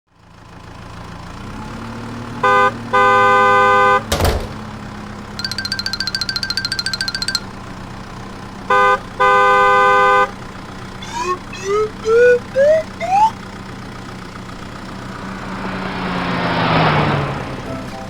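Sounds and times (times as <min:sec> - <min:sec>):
cartoon vehicle horn honking: 0:02.4 - 0:04.1, 0:08.7 - 0:10.4, 0:11.0 - 0:13.4
rising whistle glides: 0:11.0 - 0:13.4.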